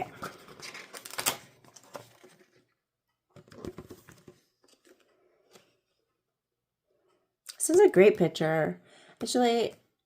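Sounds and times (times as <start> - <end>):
paper and card rustling: 0.0 - 6.1.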